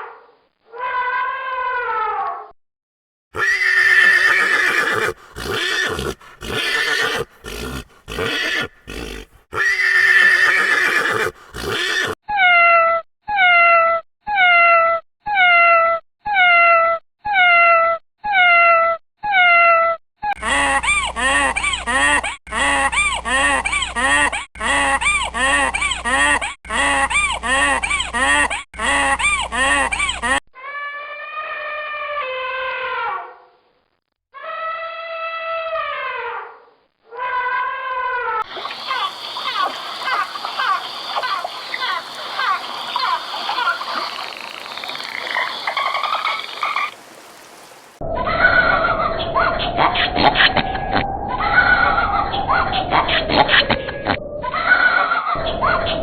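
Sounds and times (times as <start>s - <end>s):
fast repeated animal call: 3.4s - 12.2s, 38.4s - 47.9s
horse neighing: 3.4s - 12.2s, 38.5s - 47.0s
falling animal call: 3.4s - 12.6s, 37.1s - 56.0s.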